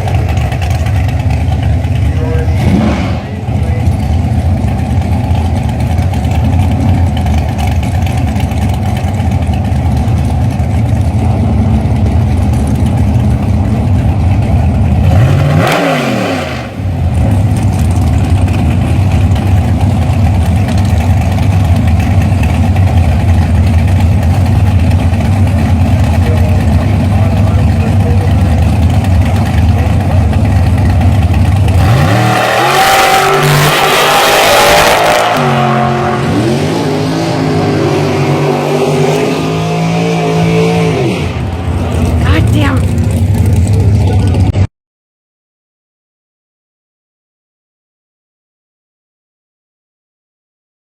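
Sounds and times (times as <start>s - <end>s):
car engine rough idle: 0.0s - 15.3s, 16.7s - 32.3s, 41.3s - 44.6s.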